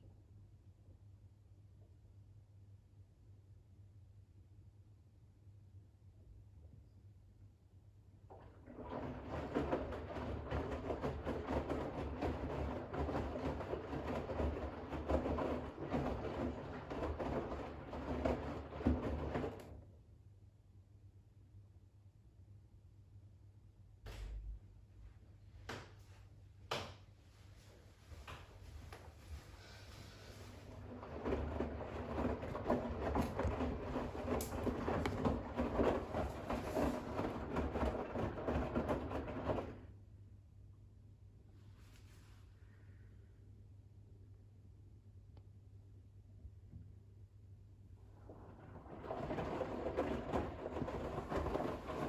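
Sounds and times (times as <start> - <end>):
water swishing in washing machine drum: 8.3 - 19.9, 29.2 - 40.0, 47.8 - 52.0.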